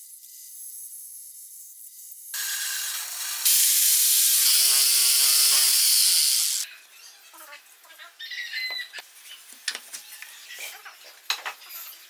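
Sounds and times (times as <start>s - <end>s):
electric power tool whining on wood: 2.4s - 6.6s.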